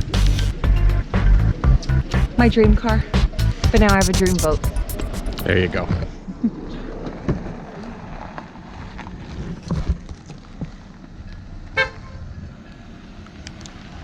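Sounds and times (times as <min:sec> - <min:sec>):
car engine rumbling: 0:00.0 - 0:05.9.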